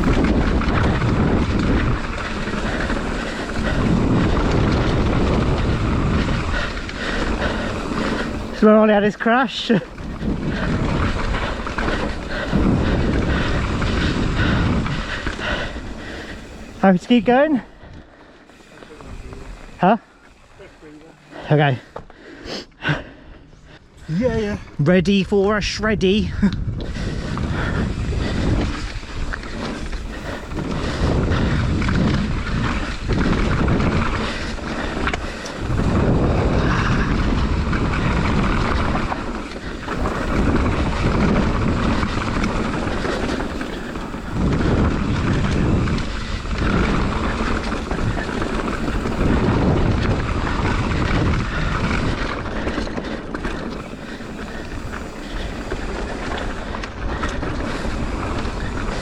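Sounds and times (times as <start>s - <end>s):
wind rushing over microphone: 0.0s - 22.0s, 22.8s - 59.0s
tyres rumbling on dirt: 0.0s - 22.2s, 22.8s - 59.0s
bike knocking and rattling: 0.0s - 22.4s, 23.4s - 59.0s.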